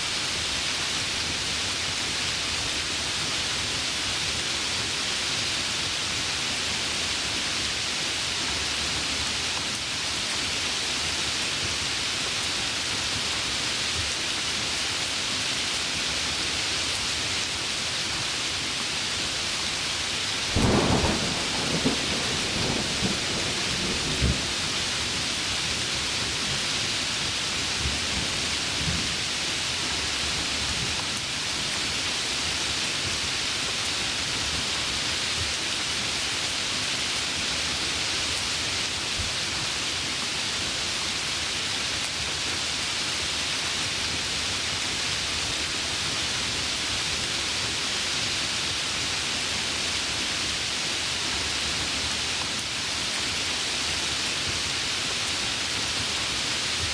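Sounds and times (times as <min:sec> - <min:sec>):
heavy rain: 0:00.0 - 0:56.9
thunder rumbles and cracks: 0:20.5 - 0:24.6.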